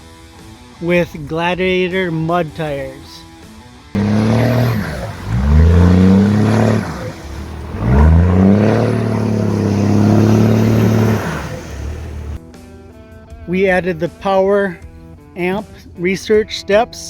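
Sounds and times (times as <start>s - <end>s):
diesel engine revving: 4.0s - 12.4s.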